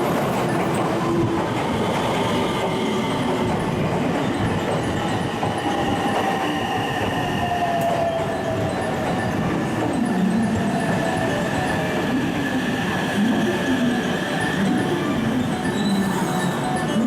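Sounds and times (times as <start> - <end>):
train wheels rumbling on track: 0.0 - 16.9.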